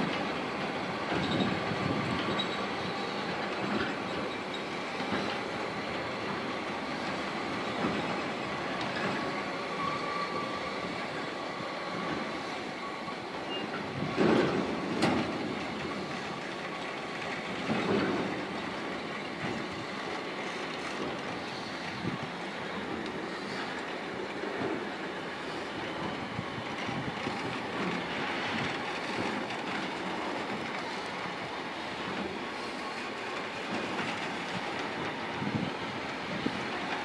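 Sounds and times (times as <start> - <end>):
train wheels rumbling: 0.0 - 37.0
faint wheel squeal: 9.7 - 10.9, 12.8 - 13.8.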